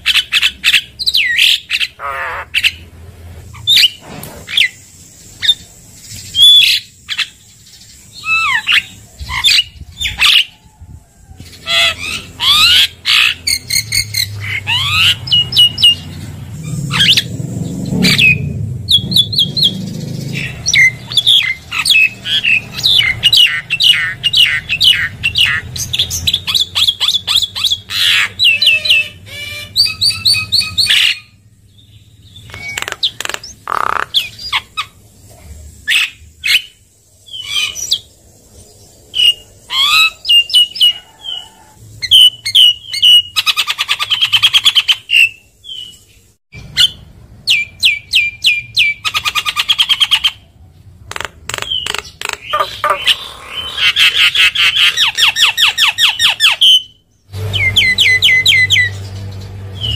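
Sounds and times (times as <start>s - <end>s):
bird singing whistles: 29.6s - 31.3s, 42.1s - 46.0s, 55.0s - 58.9s
bird chattering notes: 32.3s - 35.0s, 51.1s - 59.0s.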